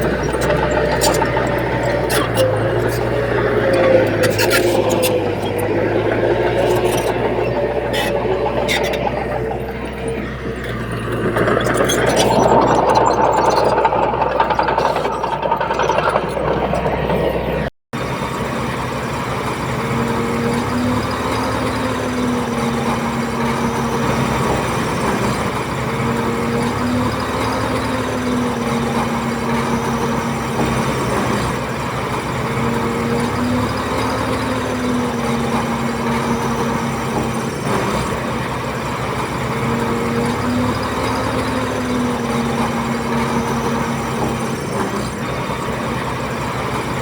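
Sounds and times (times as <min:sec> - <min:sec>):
heavy machinery diesel engines: 0:00.0 - 0:47.0.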